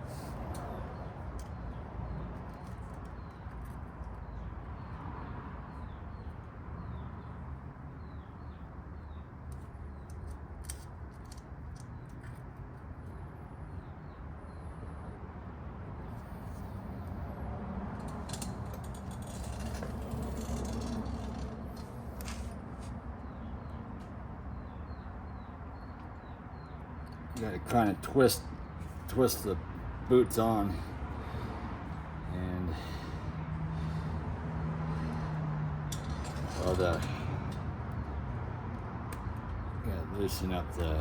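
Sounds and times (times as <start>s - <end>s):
light clicks of handled parts: 0.1s - 4.2s, 9.4s - 12.9s, 17.9s - 23.0s, 35.1s - 38.0s.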